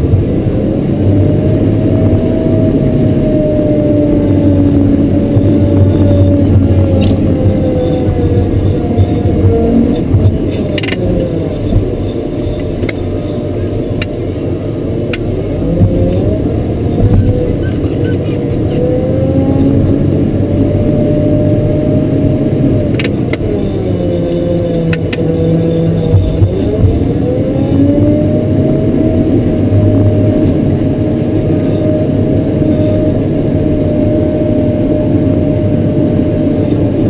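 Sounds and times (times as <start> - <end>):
diesel engine under load: 0.0 - 37.0
sharp clicks or rattles: 10.5 - 11.9.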